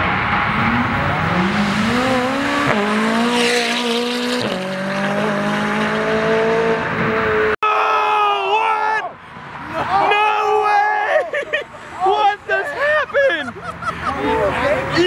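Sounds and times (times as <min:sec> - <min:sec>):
car engine accelerating hard: 0:00.0 - 0:07.6.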